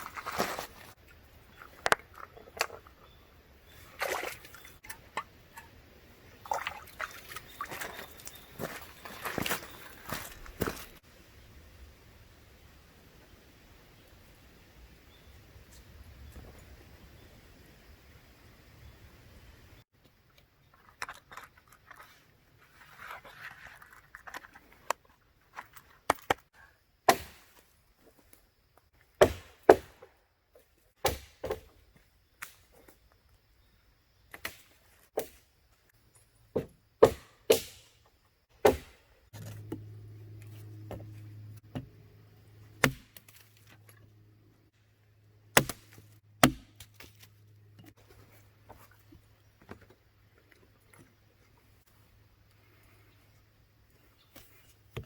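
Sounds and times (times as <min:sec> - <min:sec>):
axe chopping wood: 0:27.1 - 0:27.6, 0:29.2 - 0:30.1, 0:31.0 - 0:31.7, 0:36.6 - 0:37.9, 0:38.6 - 0:39.0, 0:42.8 - 0:43.4, 0:45.6 - 0:47.2.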